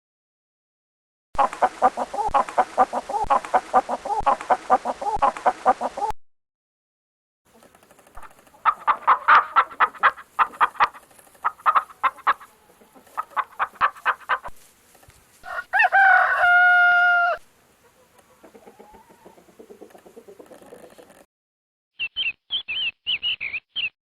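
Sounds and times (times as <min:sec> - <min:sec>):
chickens clucking: 0:01.4 - 0:06.2, 0:07.5 - 0:21.3
rooster crowing: 0:15.4 - 0:17.5.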